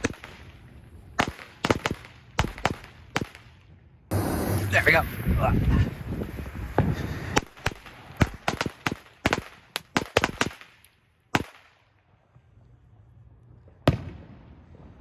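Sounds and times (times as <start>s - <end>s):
firecrackers popping: 0.0s - 11.8s.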